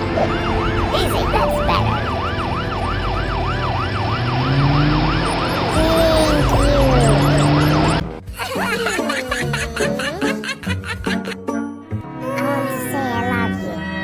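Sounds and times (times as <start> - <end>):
siren yelping: 0.0 - 8.2.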